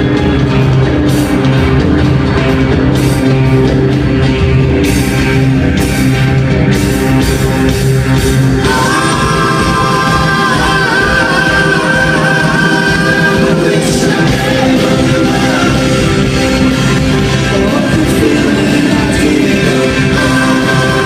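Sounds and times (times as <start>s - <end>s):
rock band playing: 0.0s - 21.0s
person singing: 8.6s - 21.0s.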